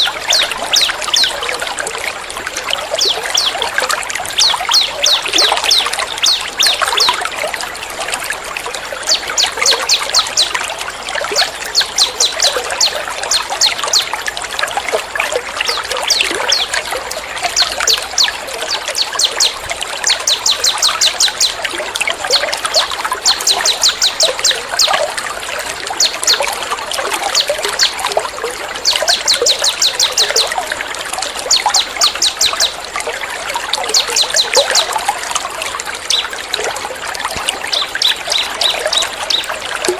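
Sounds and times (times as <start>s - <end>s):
songbirds trilling: 0.0s - 1.8s, 2.7s - 8.2s, 9.0s - 10.7s, 11.4s - 14.2s, 15.5s - 25.1s, 28.8s - 30.7s, 31.3s - 32.9s, 33.8s - 36.5s, 37.1s - 39.9s
trickle of flowing water: 0.0s - 39.9s.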